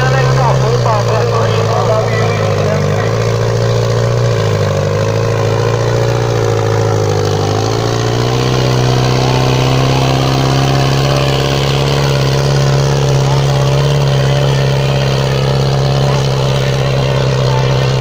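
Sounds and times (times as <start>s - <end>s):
diesel tractor engine running: 0.0s - 18.0s.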